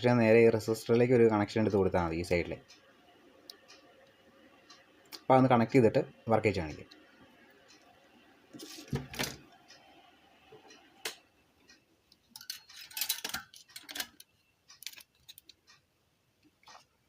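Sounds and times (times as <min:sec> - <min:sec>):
tools clicking and clinking: 0:12.3 - 0:15.6.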